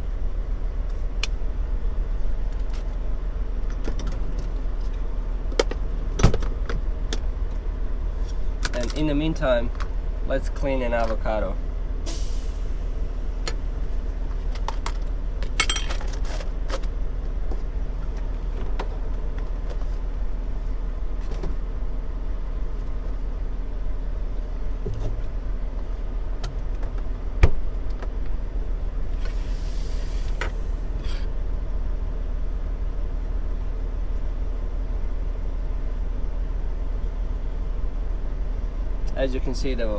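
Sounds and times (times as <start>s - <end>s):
brief hiss: 12.1s - 12.8s, 29.2s - 30.8s.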